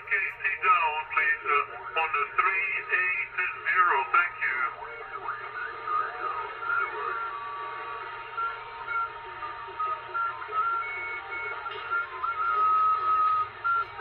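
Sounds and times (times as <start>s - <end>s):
faint garbled radio voices: 0.0s - 14.0s
radio static: 0.0s - 14.0s
whistling tones: 5.6s - 14.0s.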